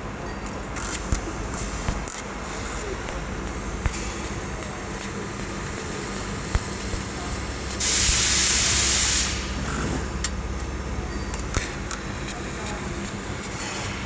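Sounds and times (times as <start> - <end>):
constant low hum: 0.0 - 14.0
steady hiss: 0.8 - 14.0.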